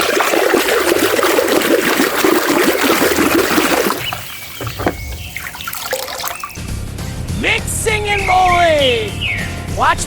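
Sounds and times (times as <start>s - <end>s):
running water splashing: 0.0s - 6.6s.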